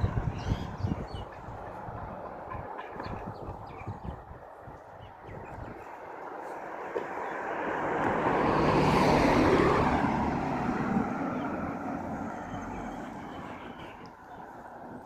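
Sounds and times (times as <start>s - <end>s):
motor vehicle passing: 6.5s - 14.7s.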